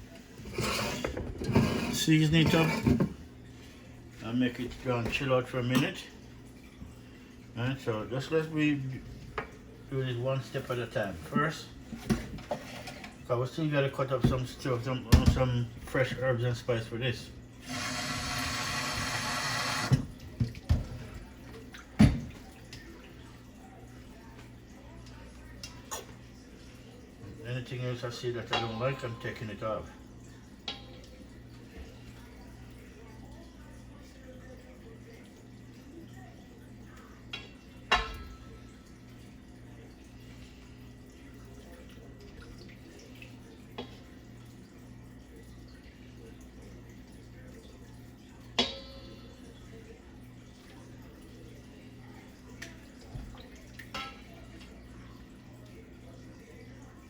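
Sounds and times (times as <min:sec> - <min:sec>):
tap running into sink: 0:17.7 - 0:21.0
water dripping in sink: 0:19.9 - 0:27.5, 0:28.4 - 0:40.1, 0:41.0 - 0:57.0.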